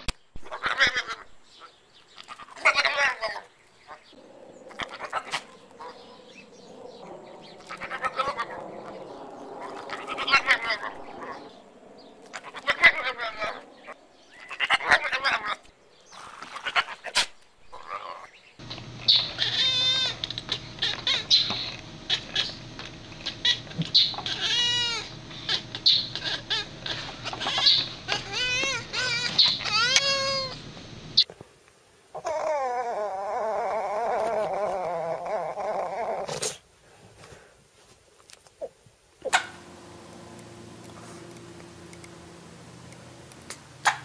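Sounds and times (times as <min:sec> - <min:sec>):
broken animal calls with clicks: 0:00.0 - 0:11.5, 0:16.4 - 0:30.6, 0:38.2 - 0:44.0
high swooping animal calls: 0:04.1 - 0:15.6, 0:19.1 - 0:30.6, 0:39.2 - 0:44.0
low hum: 0:04.2 - 0:14.2, 0:39.2 - 0:44.0.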